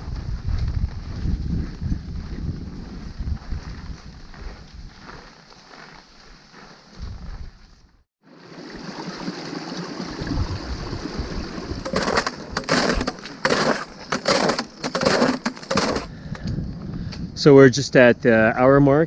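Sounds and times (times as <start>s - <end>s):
wind buffeting microphone: 0.0s - 5.2s, 7.0s - 7.6s, 10.1s - 13.0s, 15.9s - 18.2s
boots crunching in snow: 1.6s - 7.8s, 11.9s - 16.1s.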